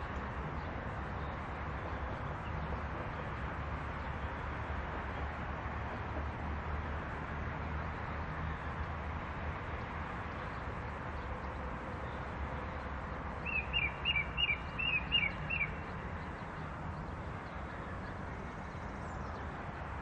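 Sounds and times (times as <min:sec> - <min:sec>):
bird chirping: 0:13.4 - 0:17.1.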